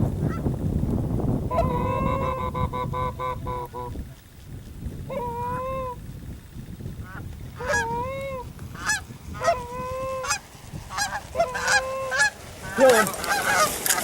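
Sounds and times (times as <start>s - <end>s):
goose call honks: 7.6s - 8.0s, 8.8s - 14.0s.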